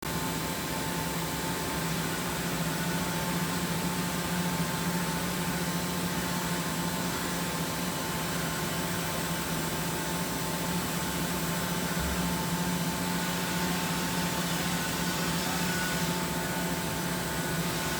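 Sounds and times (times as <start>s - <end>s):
machinery humming: 9.5s - 17.9s.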